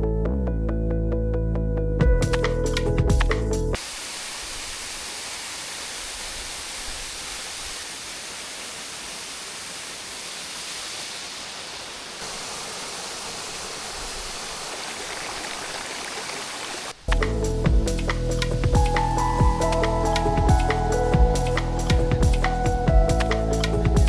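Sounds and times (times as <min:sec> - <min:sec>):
waterfall pouring over rocks: 0:03.8 - 0:24.0.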